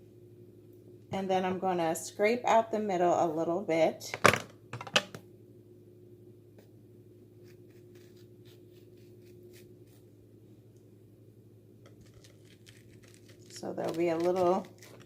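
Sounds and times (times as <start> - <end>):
steady low hum: 0.0 - 15.0
spoon scraping zucchini: 11.9 - 15.0.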